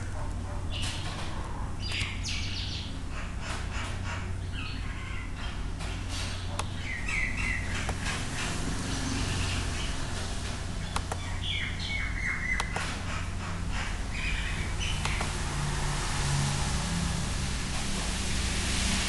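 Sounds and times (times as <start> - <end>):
steady low hum: 0.0 - 19.0
small birds chirping: 1.8 - 3.0, 4.3 - 15.4
sharp clicks: 1.9 - 2.2, 10.9 - 11.3, 12.6 - 12.9, 15.0 - 15.4.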